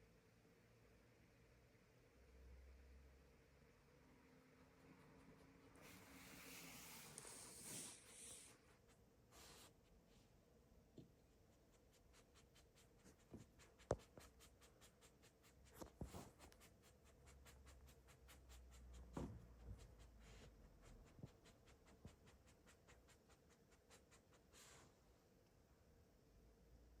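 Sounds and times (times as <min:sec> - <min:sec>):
faint scratching: 0:04.9 - 0:10.4, 0:11.3 - 0:25.0.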